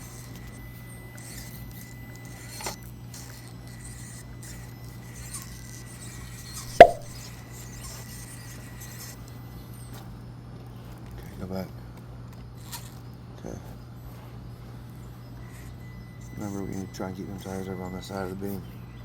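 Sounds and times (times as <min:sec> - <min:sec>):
light tap: 0:06.8 - 0:07.1
sharp knock: 0:06.8 - 0:07.2.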